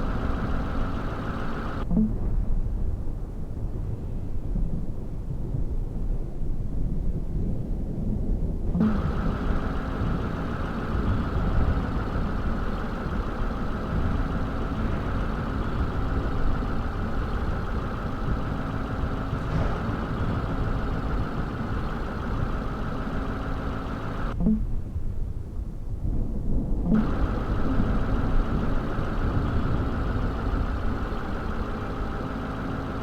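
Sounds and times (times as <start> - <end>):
motor vehicle rumbling: 0.0 - 2.3, 8.8 - 24.8, 26.8 - 33.0
faint constant hum: 0.0 - 5.3, 8.7 - 33.0.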